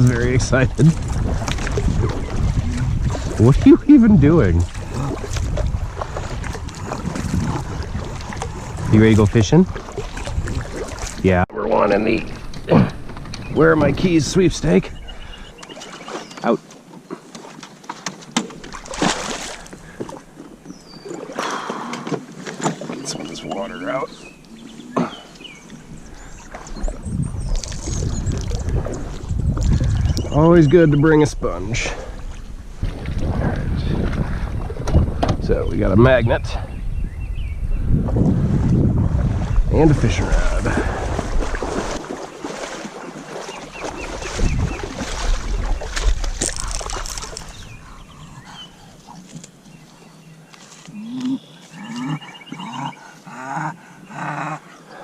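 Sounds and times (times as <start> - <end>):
wind rumble on microphone: 0.0 - 11.4, 12.1 - 15.4, 25.8 - 42.7, 43.7 - 48.6.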